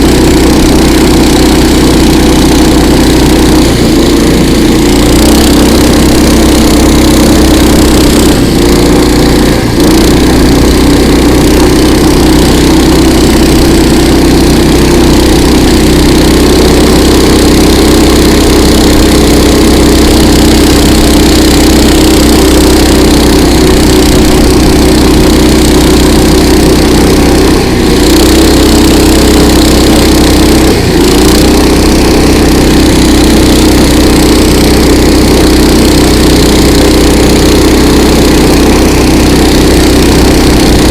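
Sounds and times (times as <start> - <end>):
motor tow engine running: 0.0 - 40.9.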